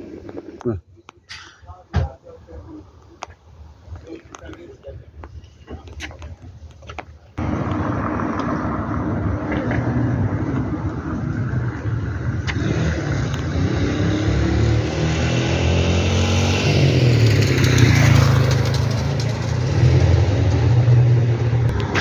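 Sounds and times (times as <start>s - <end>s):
vehicle engine running: 7.4s - 13.7s.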